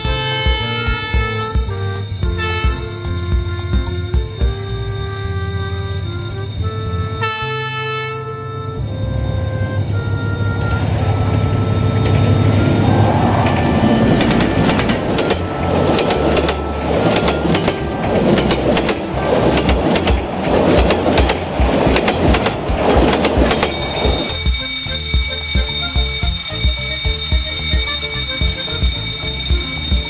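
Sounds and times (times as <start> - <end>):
locomotive rumble: 0.0 - 30.0
faint wheel squeal: 8.5 - 17.7
wheels clacking over rail joints: 12.0 - 27.7.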